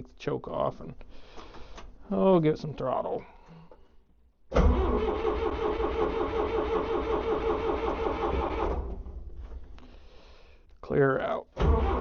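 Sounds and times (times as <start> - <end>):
starter motor cranking engine: 4.6 - 9.0, 11.6 - 12.0.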